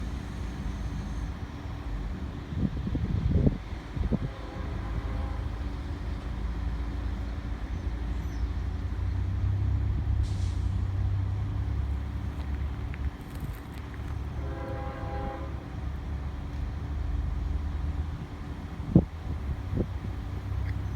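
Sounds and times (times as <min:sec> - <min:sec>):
diesel locomotive rumbling: 0:00.0 - 0:20.9
hiss of air: 0:10.2 - 0:11.0.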